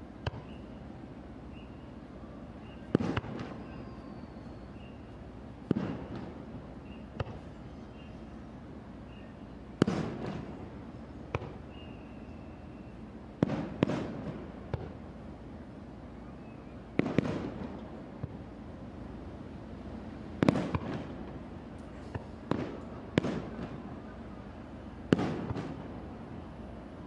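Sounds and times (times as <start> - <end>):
firework shells booming: 2.9 - 3.7, 5.6 - 6.4, 9.8 - 10.6, 13.4 - 15.0, 17.0 - 18.4, 20.4 - 21.3, 22.0 - 23.8, 25.1 - 26.0
rolling echo: 20.4 - 21.4.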